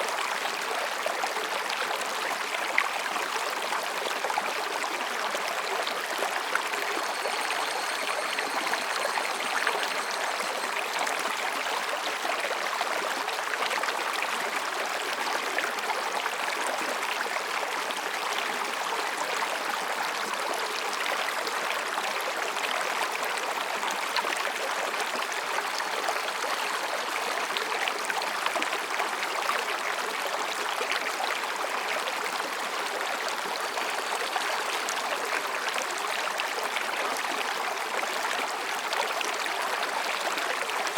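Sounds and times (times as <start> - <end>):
stream babbling over rocks: 0.0 - 40.9
faint thin high tone: 5.7 - 12.4.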